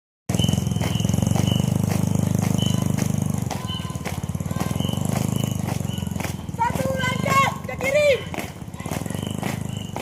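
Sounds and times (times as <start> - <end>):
regular beats: 0.3 - 10.0
high whistle blasts: 2.5 - 3.0, 3.6 - 6.2.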